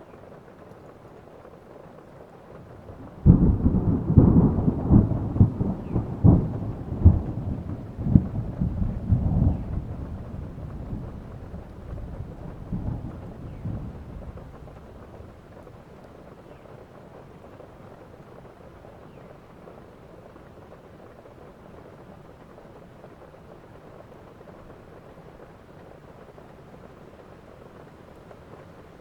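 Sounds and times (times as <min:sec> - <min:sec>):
steady rain: 0:00.0 - 0:29.0
thunderclap with rolling rumble: 0:02.6 - 0:19.2.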